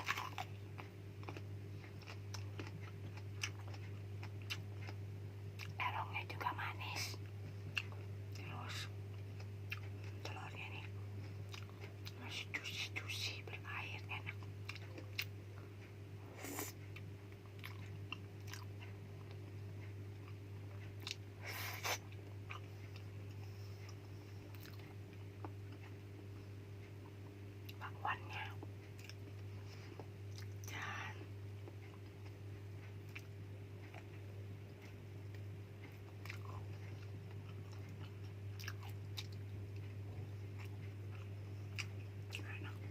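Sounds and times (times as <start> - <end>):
person chewing and biting food: 0.0 - 5.0, 9.1 - 10.2, 10.9 - 12.2, 14.2 - 26.1, 28.5 - 30.8, 31.6 - 42.8
steady low hum: 0.0 - 42.9.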